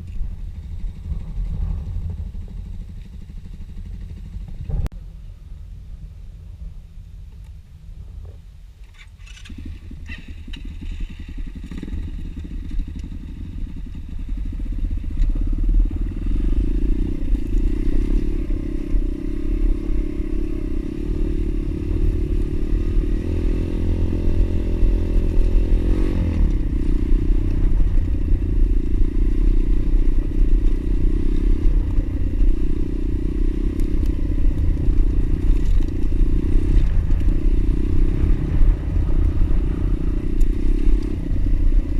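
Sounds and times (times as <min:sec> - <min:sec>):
motorbike engine running: 0:00.0 - 0:04.9, 0:09.2 - 0:41.9
engine clatter: 0:24.0 - 0:41.9.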